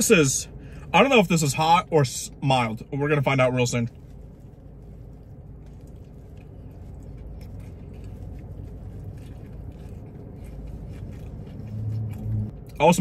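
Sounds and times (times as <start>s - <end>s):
low hum inside car: 0.0s - 13.0s
man chewing food: 2.9s - 13.0s.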